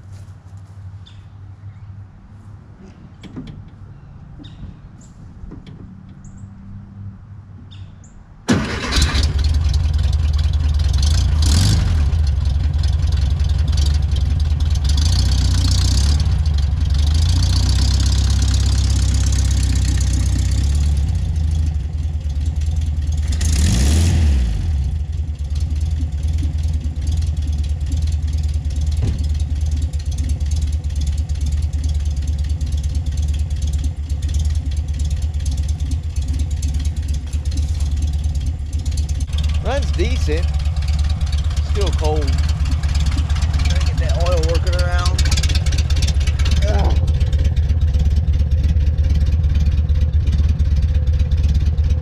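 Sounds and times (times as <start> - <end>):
car engine starting and running: 3.2 - 52.0
engine revving: 8.5 - 21.8, 23.1 - 27.2, 34.3 - 49.6.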